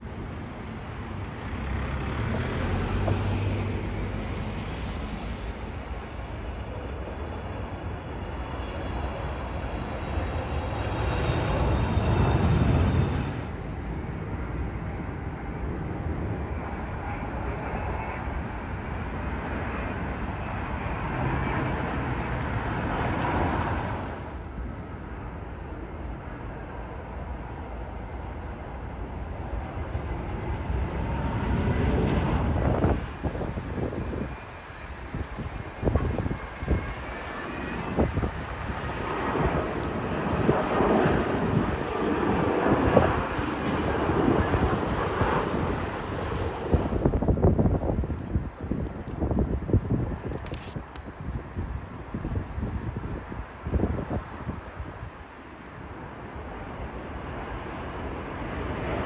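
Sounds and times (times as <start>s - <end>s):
vehicles passing by: 0.0s - 6.8s, 20.0s - 24.6s, 28.6s - 48.8s.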